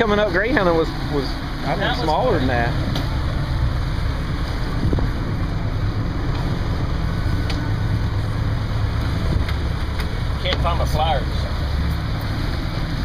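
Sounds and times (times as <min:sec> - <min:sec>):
boat motors rumbling: 0:00.0 - 0:13.0
wind on microphone: 0:04.6 - 0:08.1, 0:08.9 - 0:10.3.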